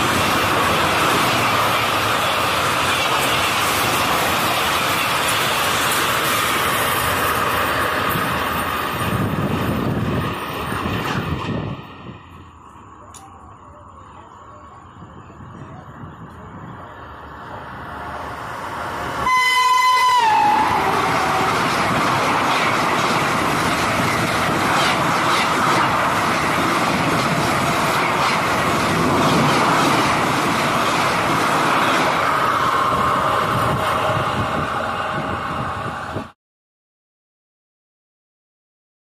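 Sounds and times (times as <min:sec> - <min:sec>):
train coaches rolling past: 0:00.0 - 0:36.4
train horn blast: 0:19.2 - 0:21.6.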